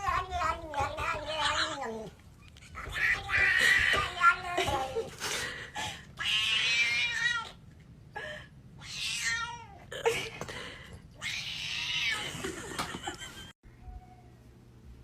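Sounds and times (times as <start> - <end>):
cat yowling: 6.2 - 7.6, 8.8 - 9.8.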